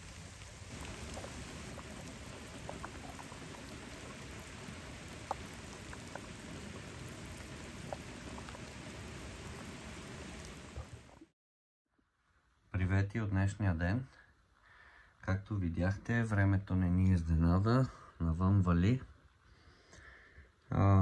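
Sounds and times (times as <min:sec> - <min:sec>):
steady rain falling: 0:00.0 - 0:11.3.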